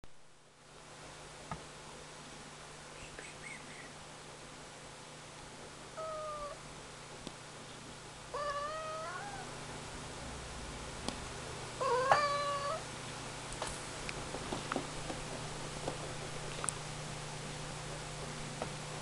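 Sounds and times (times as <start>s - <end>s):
cat meowing: 6.0s - 6.6s, 8.3s - 9.5s, 11.8s - 12.8s.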